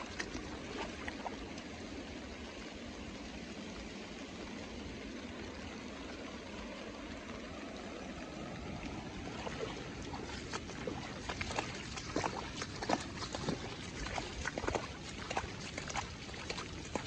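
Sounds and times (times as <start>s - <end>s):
sharp splashing clicks: 0.0s - 1.6s, 9.4s - 17.0s.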